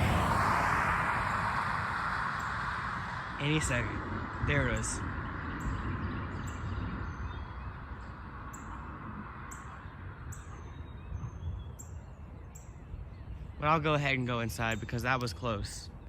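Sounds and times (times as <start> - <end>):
bird chirps: 4.7 - 8.8, 9.4 - 16.0.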